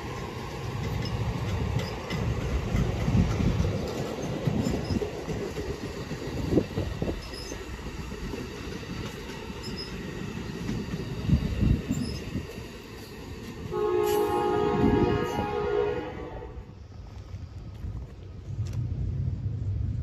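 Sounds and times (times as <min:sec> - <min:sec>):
train rumbling on the track: 0:00.0 - 0:20.0
locomotive air horn chord: 0:13.7 - 0:16.7.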